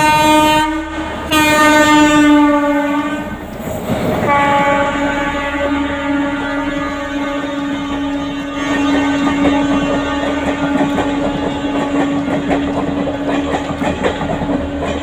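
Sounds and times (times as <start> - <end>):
train droning tone: 0.0 - 15.0.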